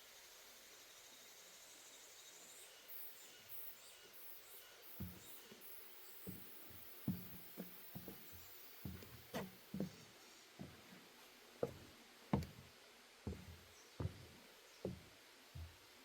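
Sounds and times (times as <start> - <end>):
footsteps on wooden boardwalk: 4.9 - 15.9.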